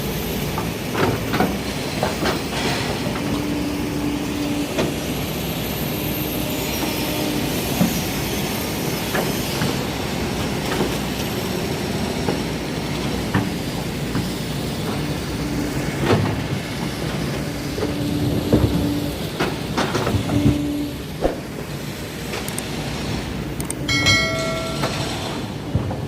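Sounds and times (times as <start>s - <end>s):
excavator diesel engine: 0.0s - 26.0s
metallic clanks and knocks: 23.9s - 26.0s.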